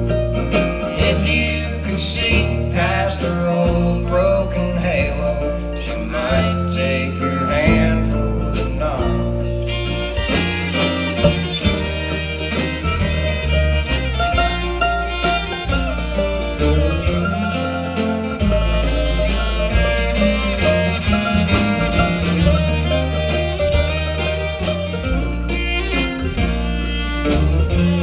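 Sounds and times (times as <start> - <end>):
bass line: 0.0 - 28.0
fiddle: 0.0 - 28.0
guitar: 0.0 - 28.0
steady beat: 9.4 - 28.0.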